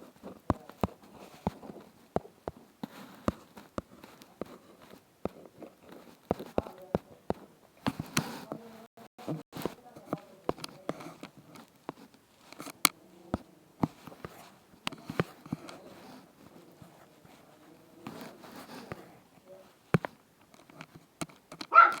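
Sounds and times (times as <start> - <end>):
faint rustling: 0.0 - 22.0
small handling clicks and taps: 0.2 - 8.6, 9.5 - 16.5, 19.9 - 22.0.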